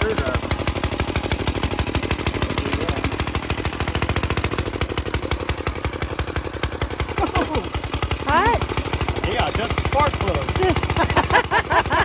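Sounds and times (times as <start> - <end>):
small mower engine running: 0.0 - 12.0.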